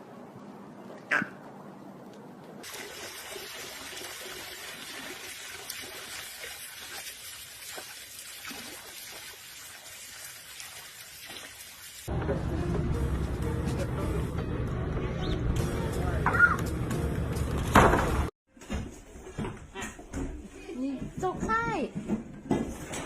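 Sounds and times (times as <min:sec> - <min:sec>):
water trickling: 0:02.6 - 0:12.1.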